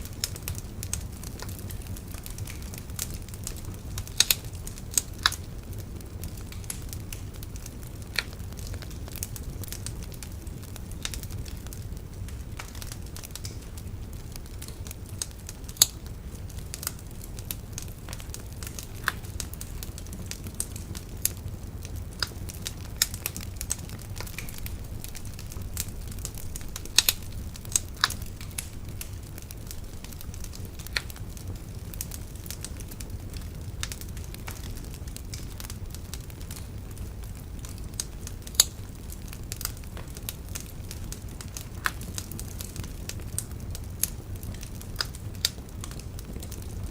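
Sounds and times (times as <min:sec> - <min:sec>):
steady low rumble: 0:00.0 - 0:46.8
bonfire crackling: 0:00.0 - 0:46.9
burning wood popping: 0:00.0 - 0:46.9.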